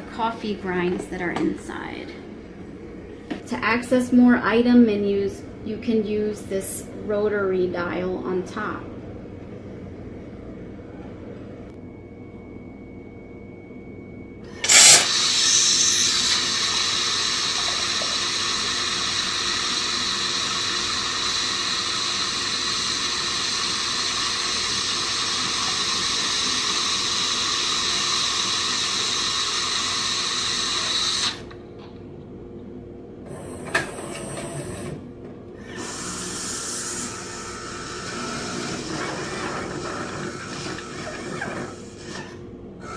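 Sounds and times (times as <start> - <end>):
coffee machine hissing and whirring: 14.4 - 31.6, 33.2 - 42.9.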